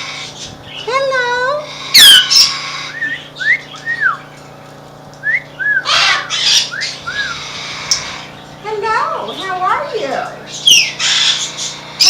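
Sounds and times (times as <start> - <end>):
parrot harsh squawks: 1.6 - 3.3, 5.8 - 8.3, 10.6 - 12.0
parrot whistles: 2.0 - 4.2, 5.2 - 7.4.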